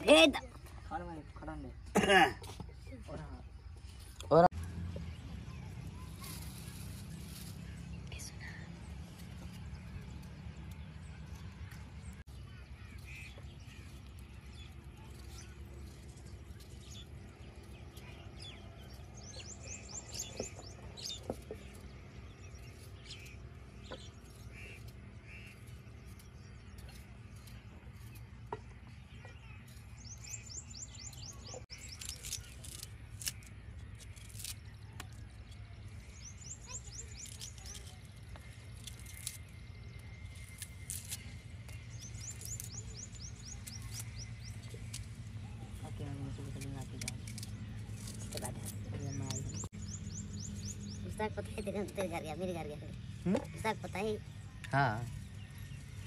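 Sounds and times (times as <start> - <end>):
birds calling: 0.0 - 56.0
high bird trill: 35.9 - 46.0.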